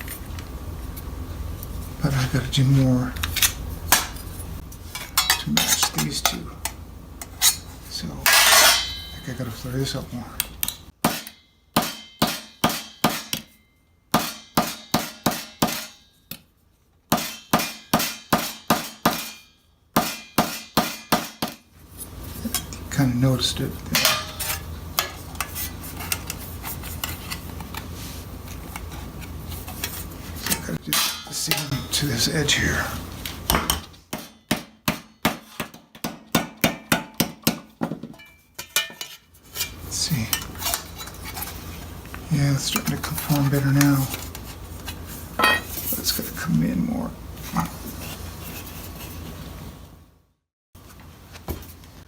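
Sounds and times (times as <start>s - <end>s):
hammer striking metal: 8.3s - 9.3s, 11.0s - 16.2s, 17.1s - 21.6s, 24.0s - 25.2s, 30.9s - 32.0s, 33.5s - 39.1s, 45.4s - 45.7s.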